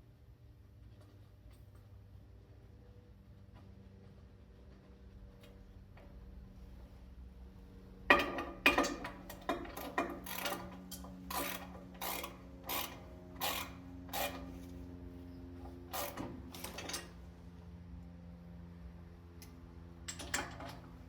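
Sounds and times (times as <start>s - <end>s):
steady low hum: 0.0s - 21.0s
hand tool scraping metal: 11.3s - 14.7s.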